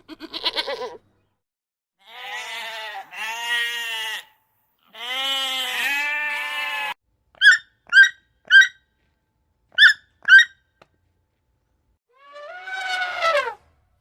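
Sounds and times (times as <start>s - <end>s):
long wavering bleat: 2.0s - 7.0s
short high squeaky chirps: 7.4s - 8.8s, 9.8s - 10.6s.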